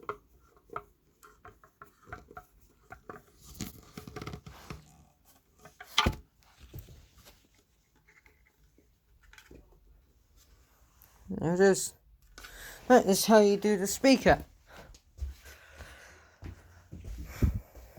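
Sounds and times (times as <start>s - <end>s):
small clicks taps and rustles: 0.0s - 9.9s.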